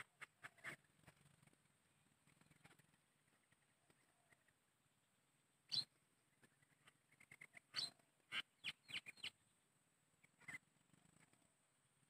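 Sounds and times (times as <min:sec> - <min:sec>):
short sharp bird calls: 0:05.7 - 0:09.4, 0:10.3 - 0:10.7.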